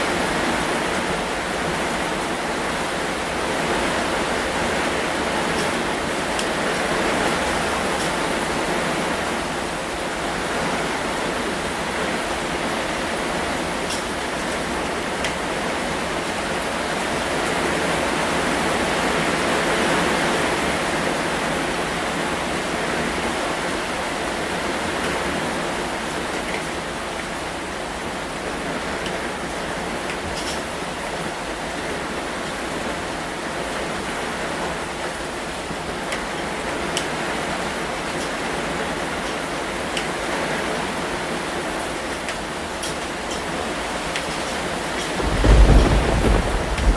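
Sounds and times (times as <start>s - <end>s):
heavy rain: 0.0s - 46.9s.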